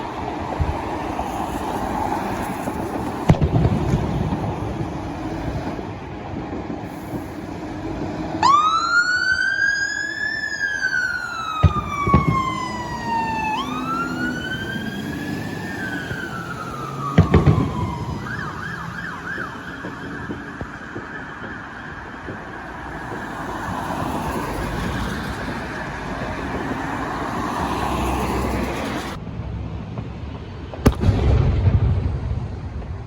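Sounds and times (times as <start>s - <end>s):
road traffic rumble: 0.0s - 33.0s
sharp bangs: 2.5s - 8.7s, 11.4s - 21.6s, 30.8s - 33.0s
emergency siren wailing and yelping: 7.4s - 29.2s.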